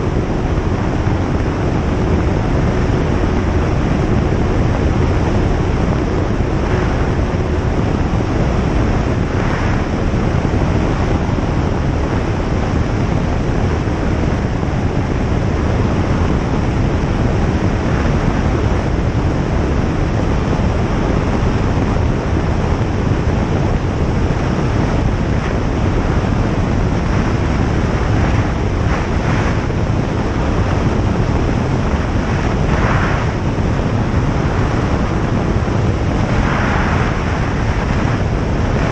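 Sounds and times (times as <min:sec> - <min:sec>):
light aircraft engine drone: 0:00.0 - 0:38.9.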